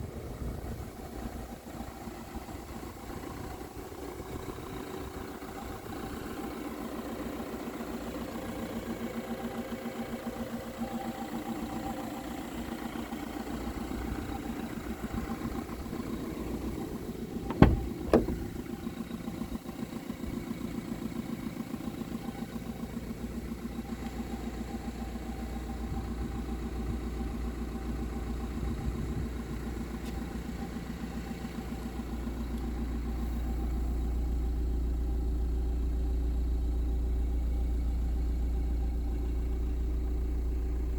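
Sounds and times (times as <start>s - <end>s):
diesel engine idling: 0.0s - 40.9s
sharp knocks: 17.5s - 18.6s.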